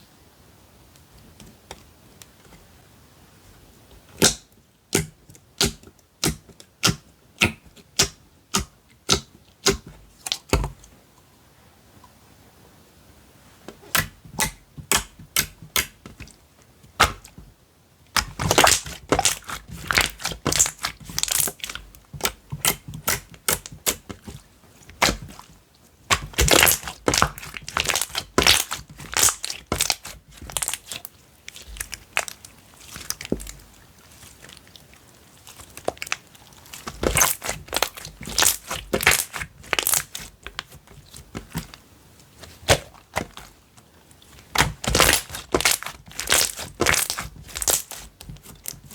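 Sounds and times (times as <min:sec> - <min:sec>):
slime squished by hand: 0:13.8 - 0:17.4, 0:18.1 - 0:41.8, 0:42.4 - 0:43.6, 0:44.2 - 0:48.9
crackly pops and clicks: 0:35.5 - 0:41.8, 0:42.5 - 0:48.9.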